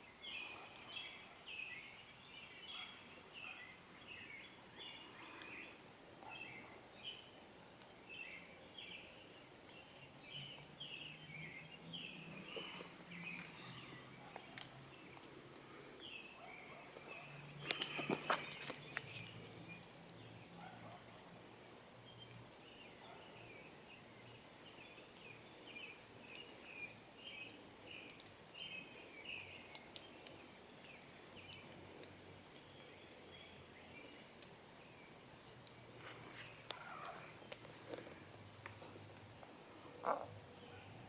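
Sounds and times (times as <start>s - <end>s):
bird singing: 8.1s - 15.2s.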